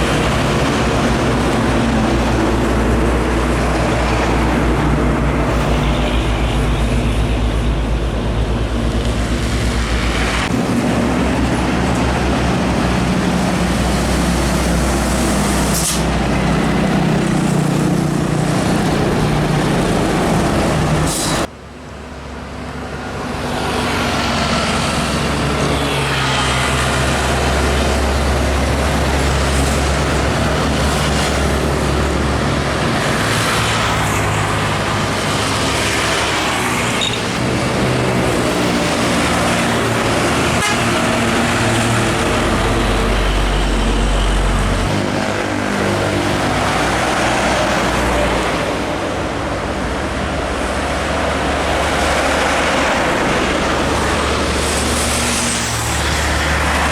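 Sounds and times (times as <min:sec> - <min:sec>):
diesel trucks driving past: 0:00.0 - 0:56.9
tyre and road noise: 0:00.0 - 0:56.9
vehicle horn tooting: 0:40.5 - 0:41.1.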